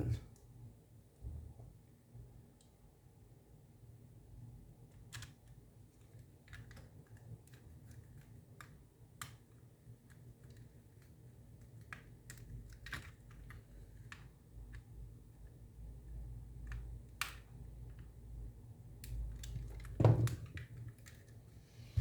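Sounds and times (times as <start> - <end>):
low steady hum: 0.0 - 3.4.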